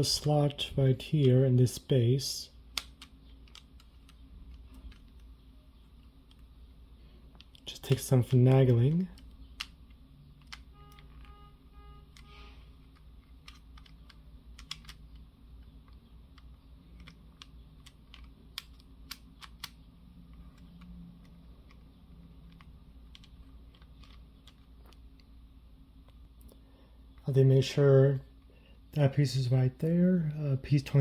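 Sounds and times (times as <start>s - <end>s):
plastic pieces clicking and tapping: 2.7s - 6.5s, 7.3s - 11.4s, 12.1s - 25.3s.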